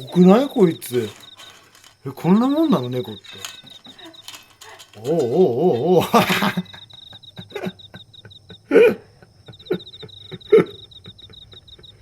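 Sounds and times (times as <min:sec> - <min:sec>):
clam shells clicking and tapping: 0:00.0 - 0:06.7.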